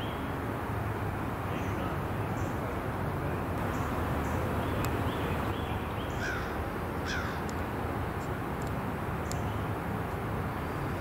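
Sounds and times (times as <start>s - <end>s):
steady background noise: 0.0s - 11.0s
short bird calls: 3.6s - 7.4s.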